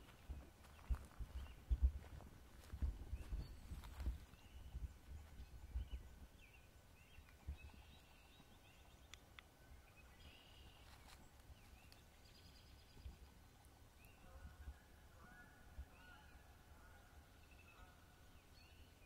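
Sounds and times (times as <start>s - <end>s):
faint small birds chirping: 0.0s - 19.0s.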